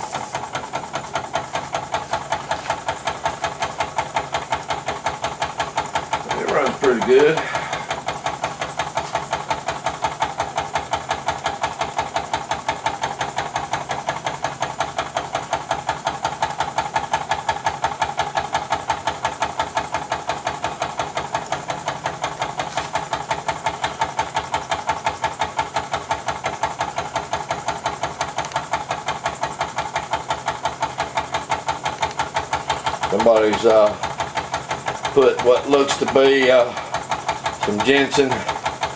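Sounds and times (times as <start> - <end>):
steam engine exhaust puffing: 0.0 - 38.9
steam hissing from leaks: 0.0 - 38.9.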